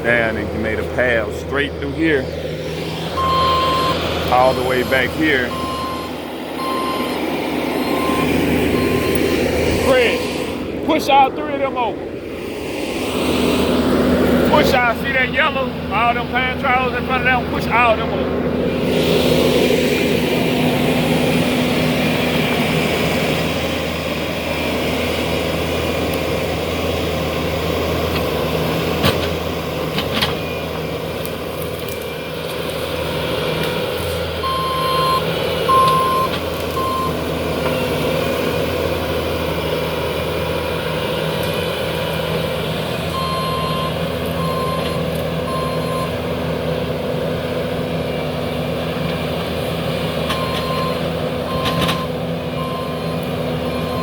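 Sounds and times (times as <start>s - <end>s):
diesel engine running: 0.0s - 54.0s
reverse alarm beeping: 3.2s - 4.0s, 5.5s - 7.2s, 7.8s - 9.2s, 34.4s - 37.9s, 43.1s - 46.1s, 50.4s - 54.0s.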